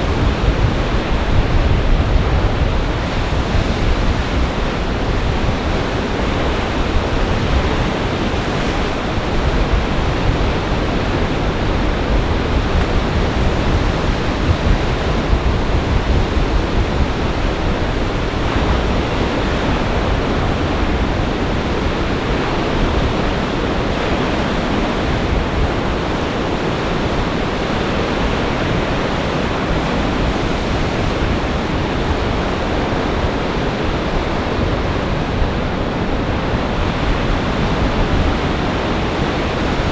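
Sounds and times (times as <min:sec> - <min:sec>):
surf crashing and rushing: 0:00.0 - 0:39.9
wind buffeting microphone: 0:00.0 - 0:39.9.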